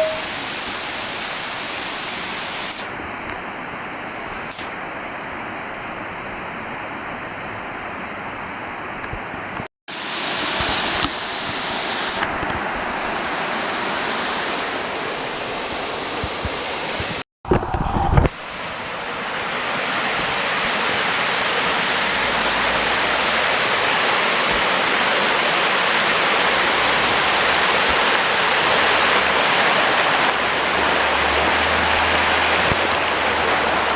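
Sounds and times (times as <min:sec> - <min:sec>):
waterfall rushing: 0:09.9 - 0:17.2, 0:18.4 - 0:33.9.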